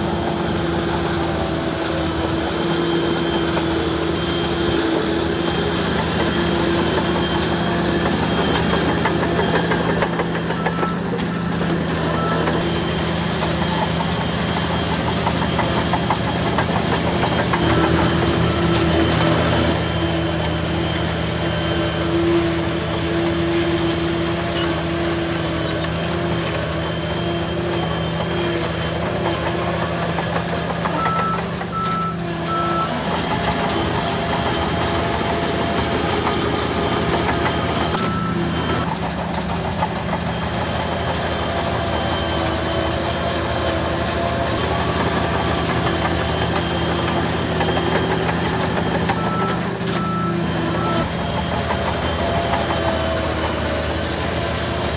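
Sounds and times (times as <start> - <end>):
heavy diesel machinery engine drone: 0.0 - 54.9
reversing alarm beeps: 3.1 - 12.7, 27.2 - 38.9, 44.6 - 51.1.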